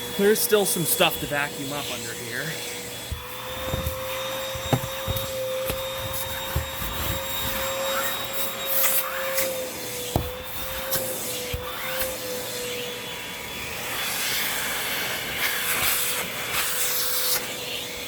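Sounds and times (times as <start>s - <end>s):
vacuum cleaner whine: 0.0s - 18.0s.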